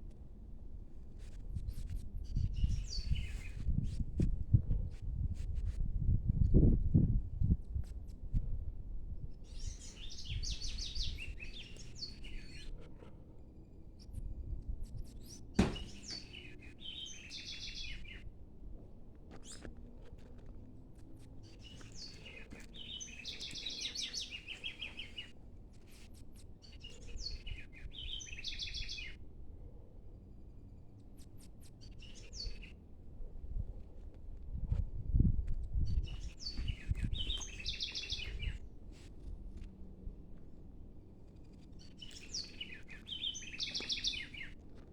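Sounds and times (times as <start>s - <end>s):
sharp knock: 15.6s - 16.2s
songbird trilling: 36.4s - 38.6s, 42.0s - 44.5s.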